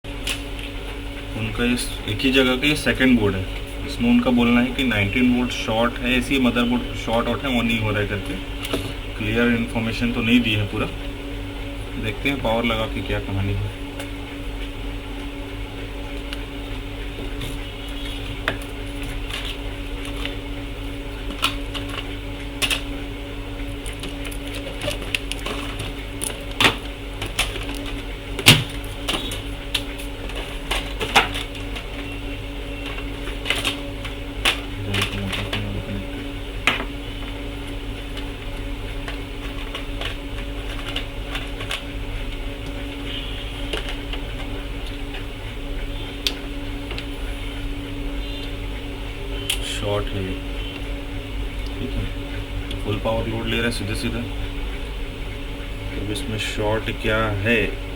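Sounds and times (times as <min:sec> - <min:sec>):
steady electrical hum: 0:00.0 - 0:57.9.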